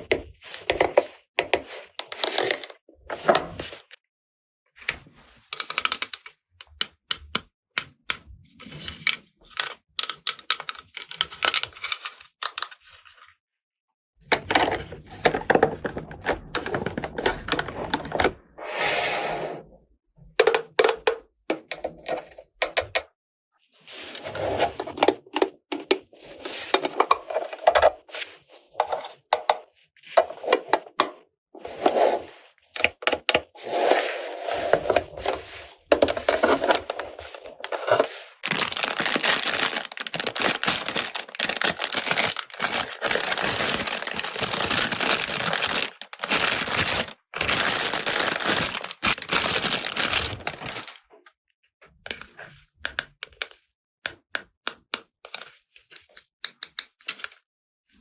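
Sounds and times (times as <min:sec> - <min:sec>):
packaging scraping and clicking: 0:00.0 - 0:02.8, 0:05.5 - 0:06.8, 0:08.7 - 0:12.7, 0:31.8 - 0:51.0
plastic wrapping crinkling: 0:35.1 - 0:51.0.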